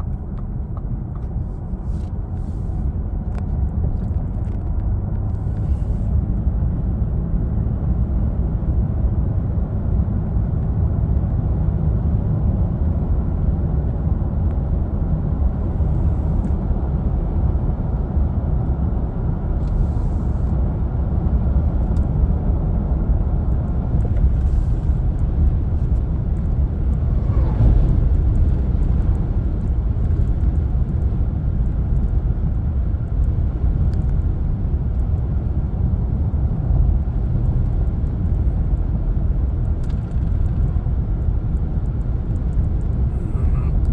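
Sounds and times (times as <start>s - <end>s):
low rumbling noise: 14.1s - 43.9s.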